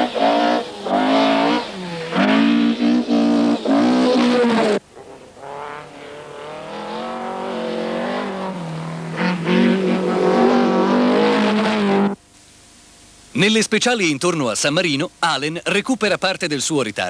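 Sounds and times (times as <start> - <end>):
rally car engine running hard: 0.0 - 12.2.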